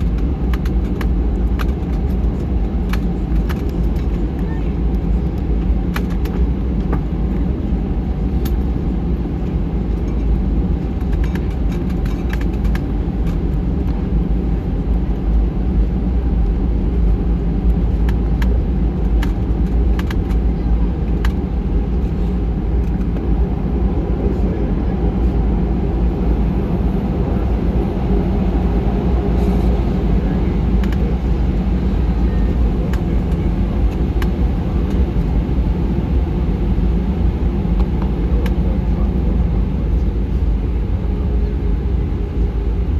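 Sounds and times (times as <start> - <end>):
airliner cabin rumble: 0.0 - 42.9
light clicks and rattles: 11.0 - 14.0.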